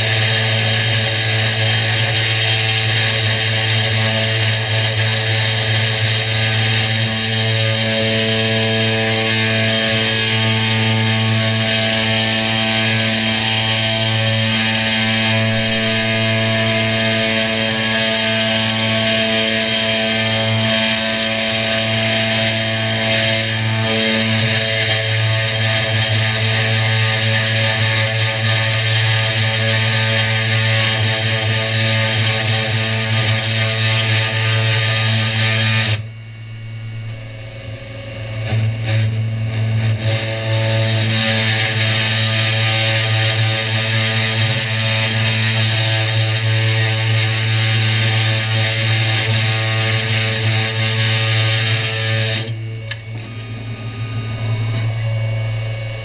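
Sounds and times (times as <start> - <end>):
router spindle motor whine: 0.0 - 56.0
milling cutting noise: 52.3 - 56.0.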